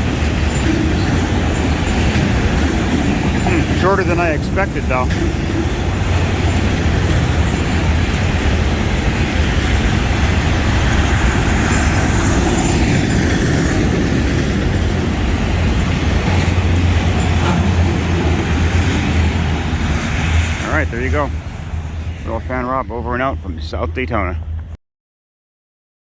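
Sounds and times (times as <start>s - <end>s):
steel wheels on rails: 0.0s - 24.7s.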